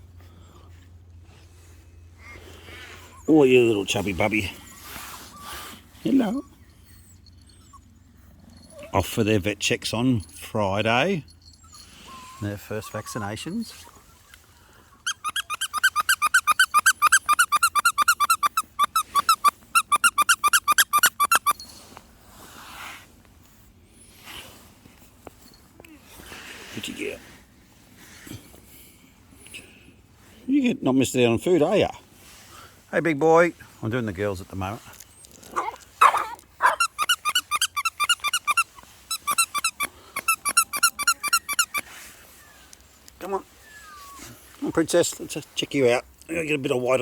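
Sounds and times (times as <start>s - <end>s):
dog whining: 4.3s - 9.2s, 11.3s - 21.7s, 35.1s - 44.6s
rubber squeaky toy squeaking: 15.0s - 21.6s, 35.5s - 42.0s.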